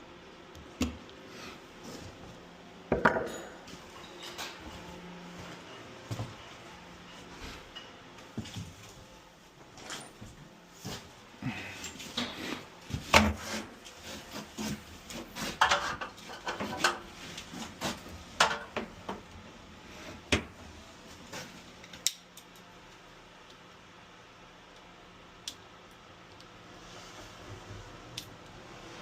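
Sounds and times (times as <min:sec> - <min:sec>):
hard objects clinking and knocking: 0:02.9 - 0:04.2.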